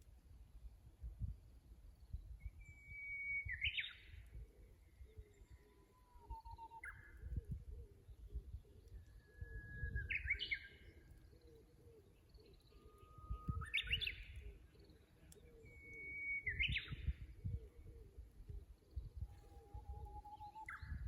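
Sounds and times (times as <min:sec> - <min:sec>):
bush warbler singing: 0:08.2 - 0:21.0.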